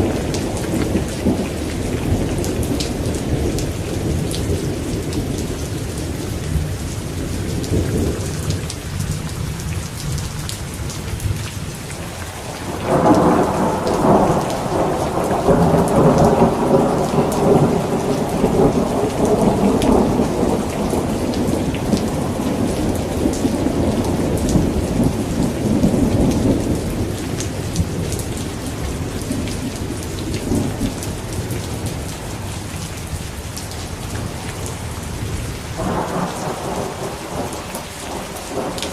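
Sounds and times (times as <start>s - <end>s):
heavy rain falling: 0.0s - 38.9s
thunder rumbling: 12.4s - 32.6s, 34.2s - 38.9s.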